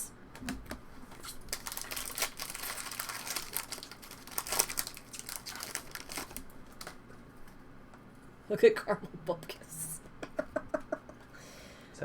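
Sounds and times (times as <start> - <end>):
wrappers crinkling: 1.1 - 7.0.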